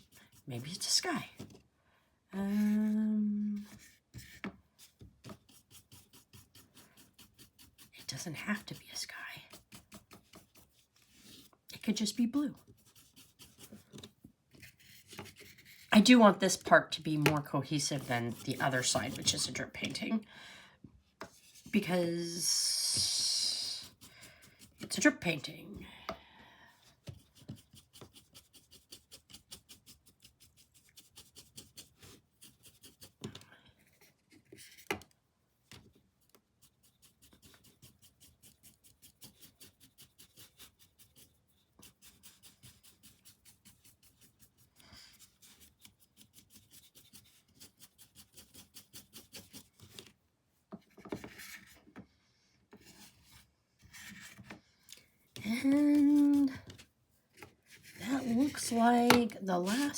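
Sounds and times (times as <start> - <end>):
paintbrush scrubbing on canvas: 0.0 - 1.4, 3.7 - 20.1, 21.3 - 25.4, 27.0 - 34.9, 36.2 - 50.1, 55.4 - 56.9, 57.6 - 59.9
brush taps: 58.2 - 59.9.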